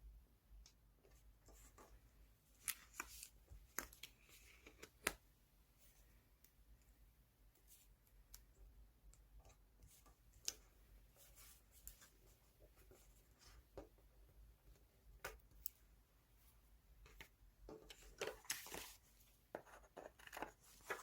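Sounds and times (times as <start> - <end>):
paper rustling: 18.0 - 19.1, 20.1 - 21.0.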